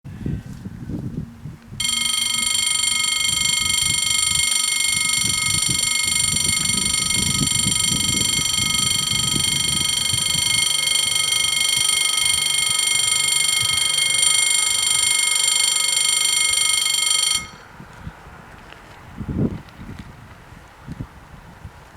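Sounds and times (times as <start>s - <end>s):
level crossing warning bells: 1.8s - 17.7s.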